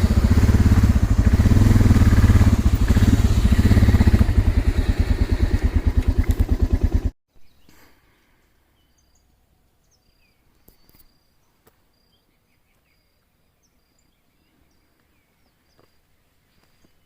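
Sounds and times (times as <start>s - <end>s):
small birds chirping: 7.3s - 17.0s.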